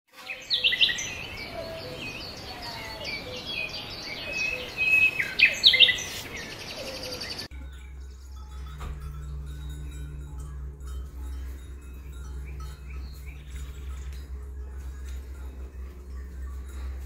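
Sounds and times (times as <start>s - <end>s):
birds singing and chirping: 0.1s - 17.0s
steady background hiss: 0.2s - 17.0s
faint low hum: 7.4s - 17.0s.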